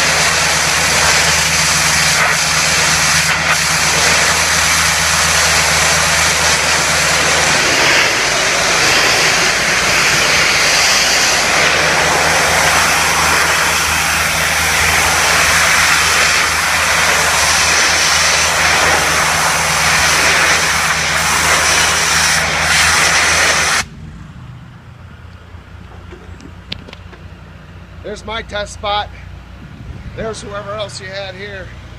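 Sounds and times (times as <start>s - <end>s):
pressure washer water jet hissing: 0.0s - 23.9s
engine droning: 0.0s - 31.9s.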